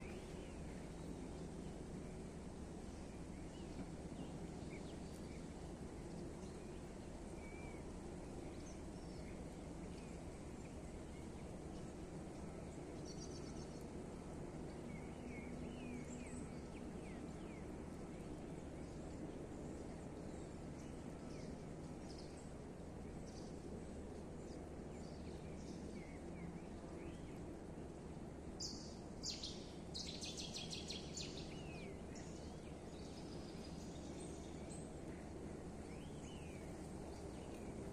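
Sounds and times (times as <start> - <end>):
low background rumble: 0.0 - 37.9.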